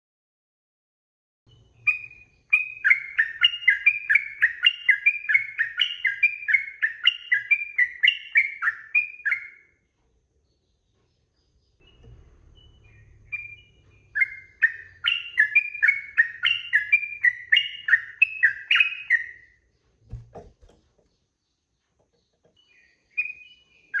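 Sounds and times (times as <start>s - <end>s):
bird singing bubbly chirps: 12.6s - 19.4s.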